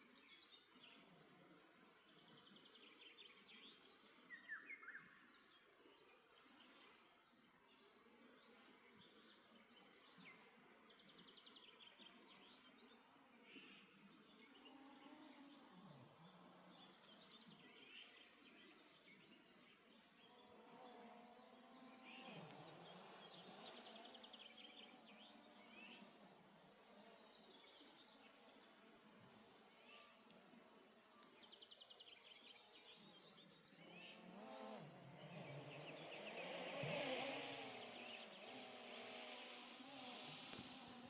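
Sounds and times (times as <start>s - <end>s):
songbirds chirping and trilling: 0.0s - 41.0s
low falling sounds: 34.1s - 41.0s.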